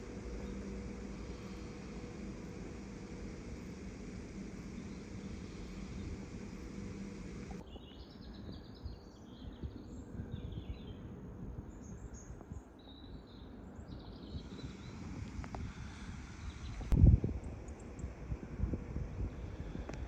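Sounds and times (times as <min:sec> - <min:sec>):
steady hum: 0:00.0 - 0:07.6, 0:13.6 - 0:20.0
small birds chirping: 0:00.0 - 0:11.1, 0:11.7 - 0:18.2
wind rumble on microphone: 0:00.0 - 0:20.0.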